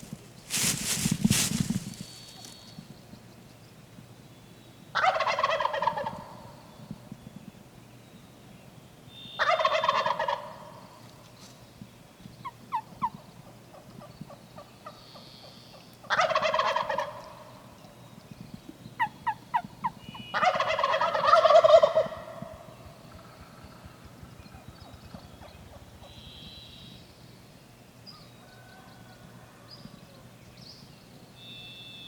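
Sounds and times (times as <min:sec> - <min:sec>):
turkey yelps: 0:05.0 - 0:06.3, 0:09.4 - 0:10.6, 0:16.1 - 0:17.3, 0:20.3 - 0:22.4
turkey gobbling: 0:05.0 - 0:06.4, 0:09.4 - 0:10.8, 0:16.1 - 0:17.5, 0:20.4 - 0:22.5.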